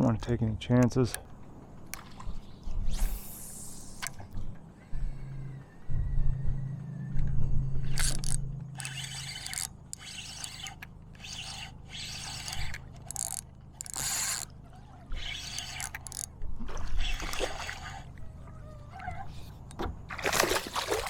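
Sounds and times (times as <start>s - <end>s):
low steady hum: 0.0s - 21.0s
fishing gear scraping and rustling: 7.9s - 18.1s.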